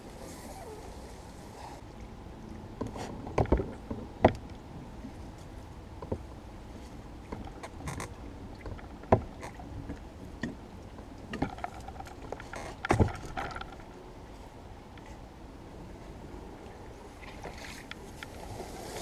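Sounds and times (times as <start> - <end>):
oar and hull knocking on branches: 11.3 - 13.8.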